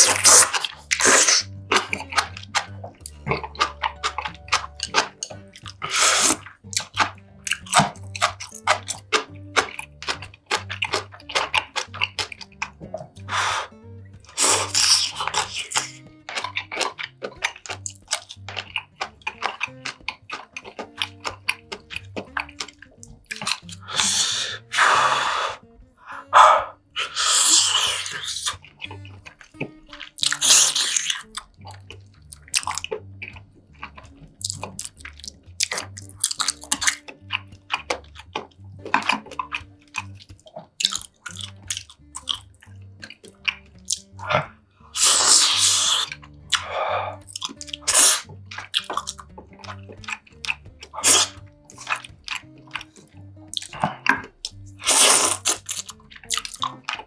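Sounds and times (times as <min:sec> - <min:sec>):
utensils clicking on dishes: 0:00.0 - 0:13.6
chewing: 0:00.0 - 0:57.0
slurping soup: 0:00.0 - 0:57.0
soft background music: 0:00.0 - 0:57.0.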